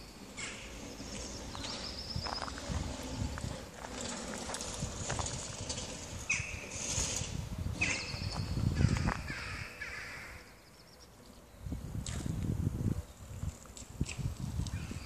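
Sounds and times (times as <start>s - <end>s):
harsh bird calls: 0.0s - 3.6s, 6.2s - 11.5s
low thumping footsteps: 1.1s - 6.2s, 8.1s - 9.3s.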